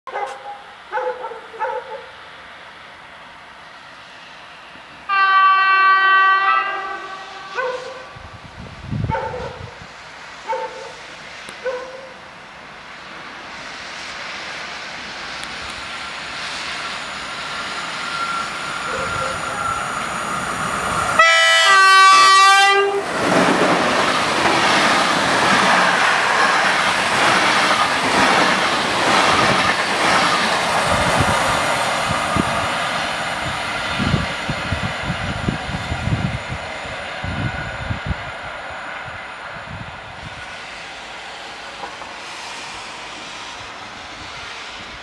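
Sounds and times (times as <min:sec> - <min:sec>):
train passing at speed: 0:00.1 - 0:45.0
locomotive horn blast: 0:05.1 - 0:08.2, 0:21.2 - 0:23.1.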